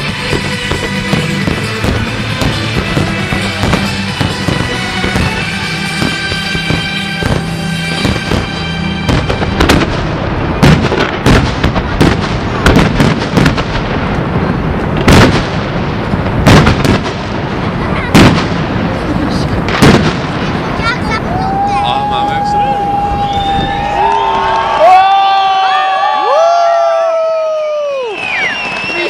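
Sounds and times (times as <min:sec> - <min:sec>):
music playing: 0:00.0 - 0:10.7
loud firework booms: 0:00.0 - 0:21.7
fireworks bangs and crackles: 0:00.0 - 0:29.0.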